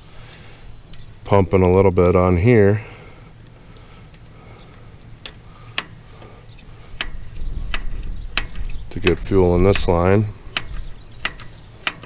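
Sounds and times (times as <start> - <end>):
hand pump clicking: 4.1 - 6.0, 6.6 - 12.0
low rumble: 5.5 - 11.2.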